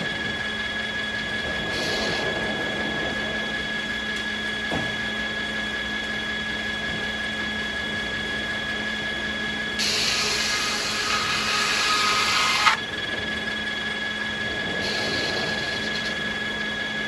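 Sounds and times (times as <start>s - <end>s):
high steady whine: 0.0s - 17.0s
sawmill machinery humming: 0.0s - 17.0s
loud hissy noise: 9.8s - 12.8s, 14.8s - 16.1s.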